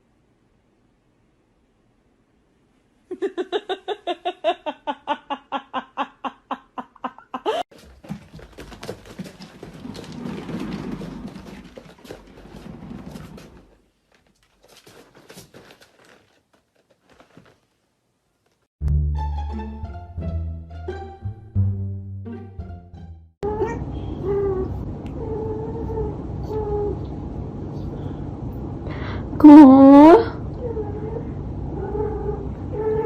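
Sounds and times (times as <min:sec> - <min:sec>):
rustling noise: 0:07.7 - 0:18.7.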